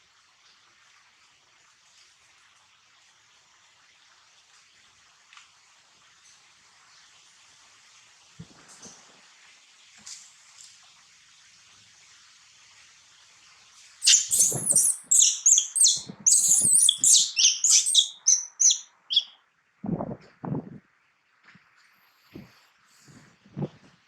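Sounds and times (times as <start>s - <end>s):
baby monkey squealing: 14.0s - 19.3s.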